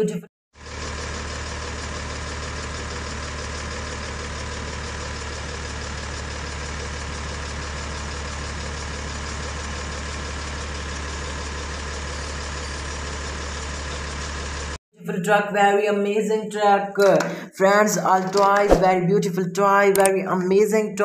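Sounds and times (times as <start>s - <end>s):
truck engine idling: 0.6s - 14.8s.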